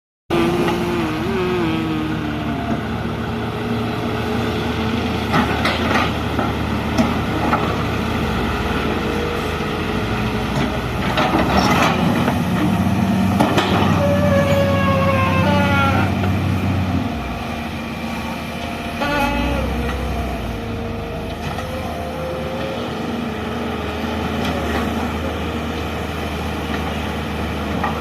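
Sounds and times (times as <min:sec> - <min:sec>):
wavering whine: 0:00.3 - 0:03.4
excavator diesel engine running: 0:00.3 - 0:28.0.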